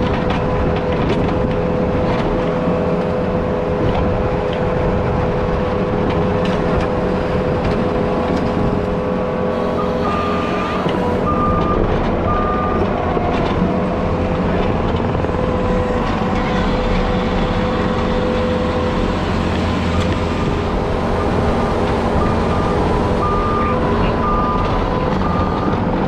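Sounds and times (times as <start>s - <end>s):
diesel grading machine running: 0.0s - 26.0s
backup alarm beeping: 11.2s - 12.9s, 21.1s - 25.8s.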